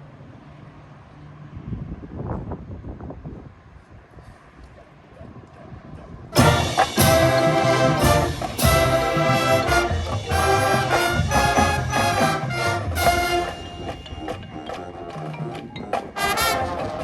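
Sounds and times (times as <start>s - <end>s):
brass band playing chords: 6.3s - 17.0s.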